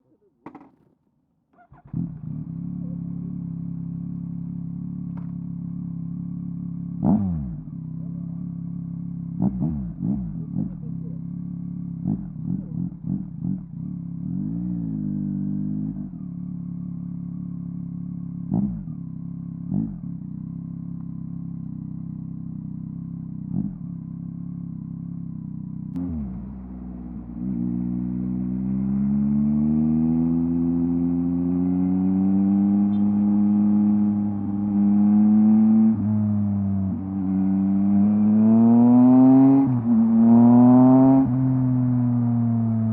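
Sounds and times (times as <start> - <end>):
motorcycle accelerating: 1.6 - 42.9
motorcycle engine idling: 1.7 - 7.0, 7.6 - 14.4, 15.9 - 29.2.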